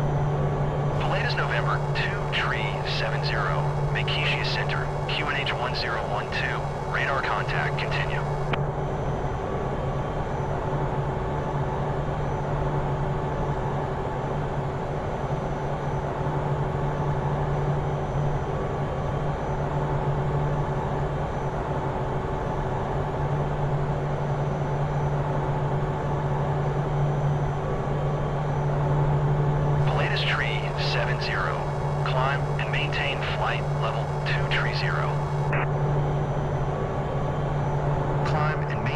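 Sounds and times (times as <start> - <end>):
aircraft engine hum: 0.0 - 11.3, 20.7 - 38.9.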